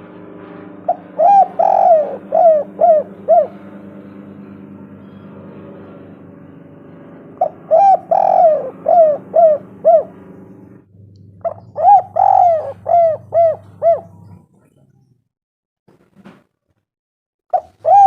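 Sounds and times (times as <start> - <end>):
low steady hum: 0.0 - 15.2
dove cooing: 0.8 - 5.3, 7.4 - 15.0, 17.5 - 18.0.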